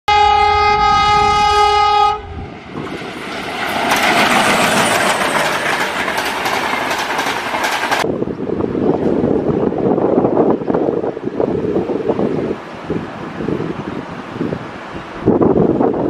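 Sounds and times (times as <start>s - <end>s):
locomotive air horn: 0.1s - 2.4s
passing train rumble and clatter: 0.1s - 16.0s.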